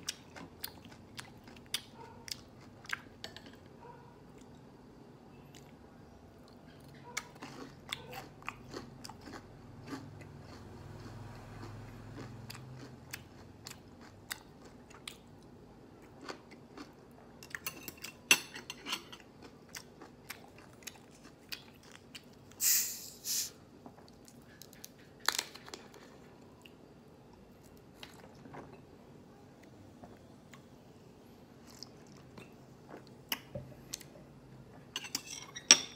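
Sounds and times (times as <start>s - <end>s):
crunching of crispy fried food: 7.2s - 17.2s.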